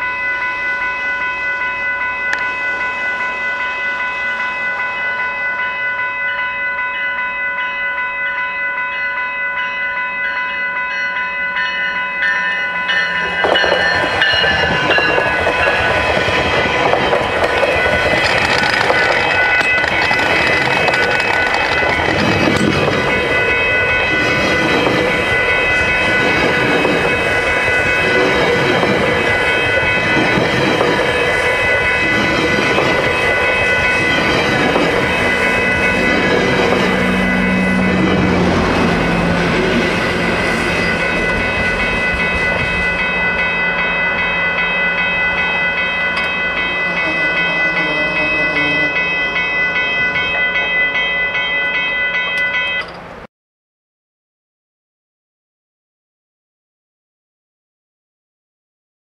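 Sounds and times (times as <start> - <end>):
level-crossing bell ringing: 0.0 - 53.2
train wheels clattering over rails: 13.0 - 23.2, 26.0 - 43.2.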